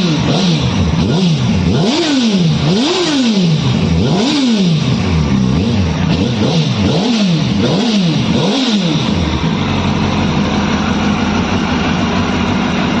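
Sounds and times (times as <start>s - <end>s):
motorcycle engine revving and idling: 0.0s - 13.0s.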